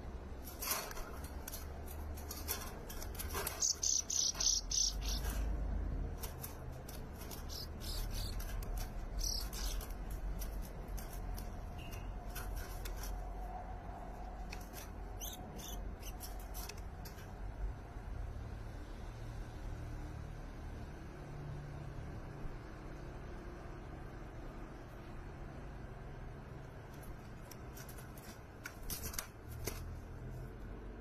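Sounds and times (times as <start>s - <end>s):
rapid high bird chirps: 3.3s - 5.5s, 6.9s - 10.1s, 15.1s - 16.6s.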